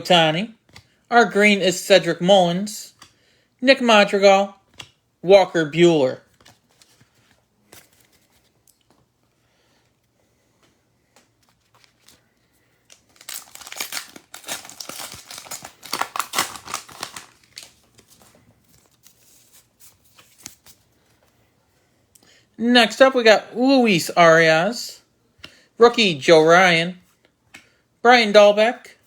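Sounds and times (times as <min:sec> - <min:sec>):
foil wrapper tearing and crinkling: 0:12.8 - 0:18.2.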